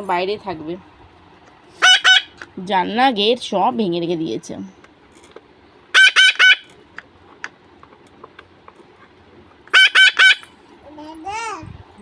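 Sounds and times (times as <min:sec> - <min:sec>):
parrot screeching: 0:01.8 - 0:02.4, 0:05.9 - 0:06.7, 0:09.7 - 0:10.5.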